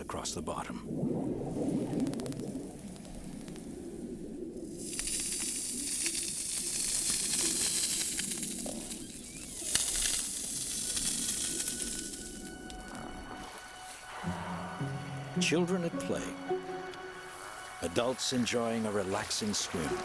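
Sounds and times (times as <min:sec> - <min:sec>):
low underwater rumble: 0:00.8 - 0:04.8
pebbles scraping and clicking underwater: 0:04.6 - 0:13.1.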